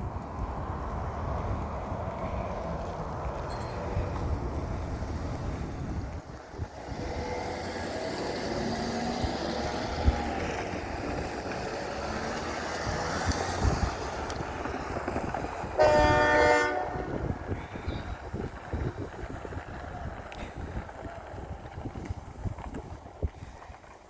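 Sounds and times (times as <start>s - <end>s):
train rumbling: 0.0s - 24.0s
locomotive horn blast: 15.8s - 17.5s.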